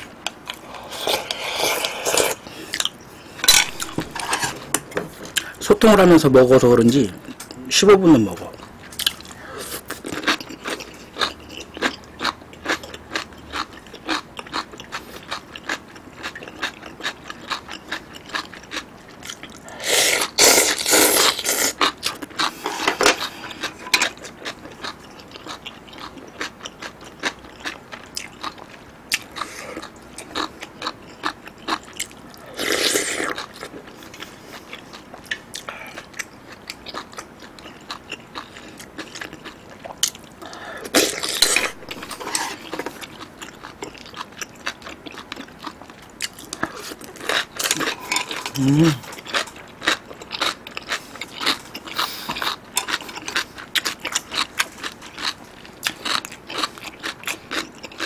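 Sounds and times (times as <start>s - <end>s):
chewing with wet mouth clicks: 2.7s - 3.0s, 8.6s - 19.6s, 23.4s - 32.4s, 33.2s - 58.0s.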